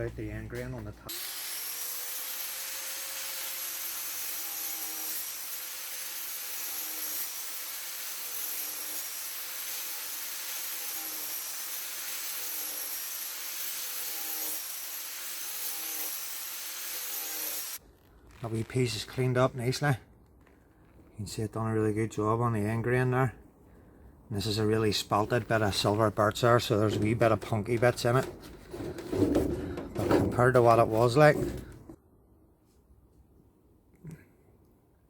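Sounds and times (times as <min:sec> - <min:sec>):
angle grinder abrading wood: 0:00.1 - 0:17.8, 0:25.0 - 0:32.0.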